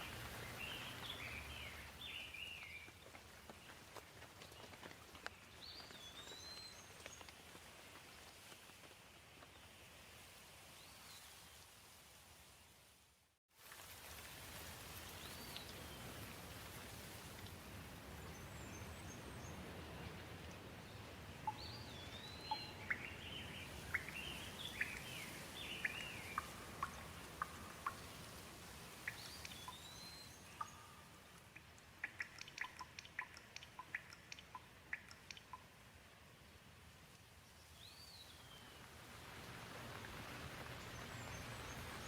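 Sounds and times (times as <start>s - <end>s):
gentle rain falling: 0.0s - 42.0s
water drops plinking: 21.5s - 28.2s, 29.1s - 35.7s.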